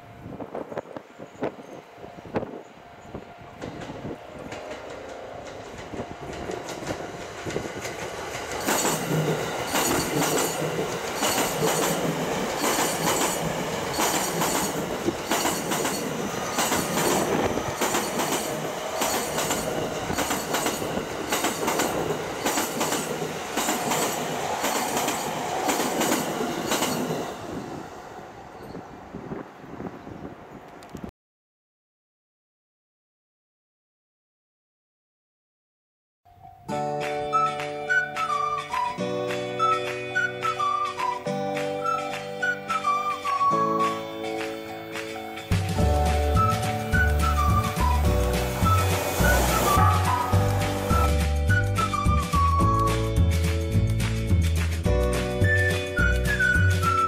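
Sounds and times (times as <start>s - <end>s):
electric train passing: 0.0s - 31.0s, 36.4s - 57.0s
wheels clicking over rail joints: 3.6s - 27.2s.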